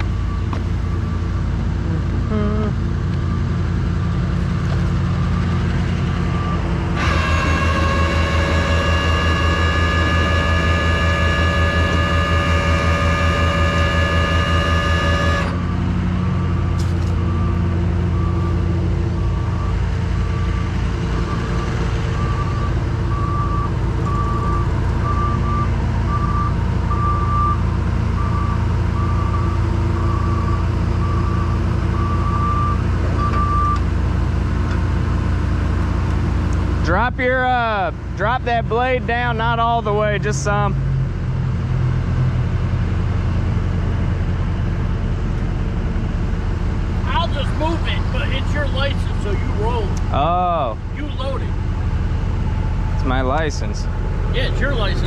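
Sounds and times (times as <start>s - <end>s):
diesel engine running: 0.0s - 55.0s
backup alarm beeping: 5.2s - 15.6s, 16.4s - 27.6s, 28.2s - 33.8s
high-pitched hydraulic whine: 6.2s - 15.7s.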